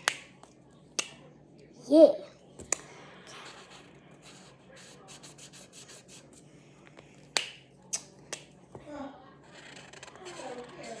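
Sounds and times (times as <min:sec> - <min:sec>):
colouring tool scratching paper: 0:03.3 - 0:06.3, 0:09.3 - 0:11.0.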